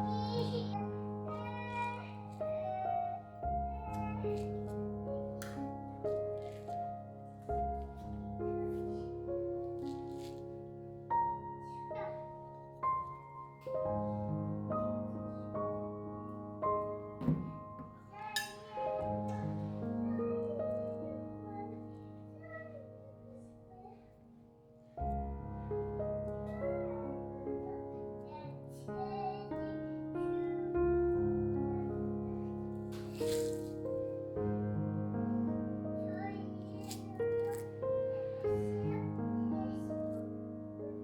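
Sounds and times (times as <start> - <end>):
soft piano music: 0.0 - 41.0
household knocks: 17.2 - 18.0.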